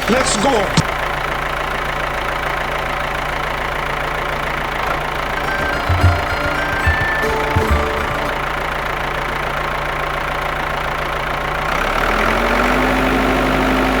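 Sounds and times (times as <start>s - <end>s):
higher steady tone: 5.4s - 9.0s.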